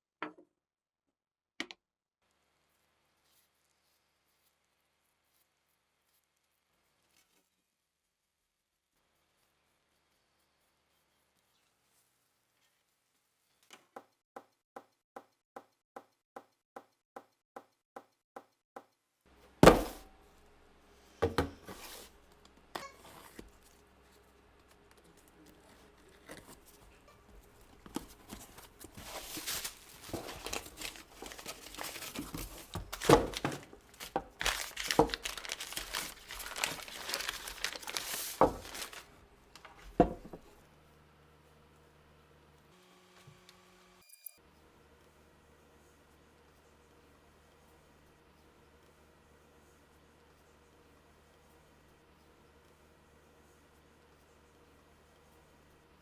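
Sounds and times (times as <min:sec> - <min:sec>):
crinkling rustling handling noise: 0:21.6 - 0:40.4.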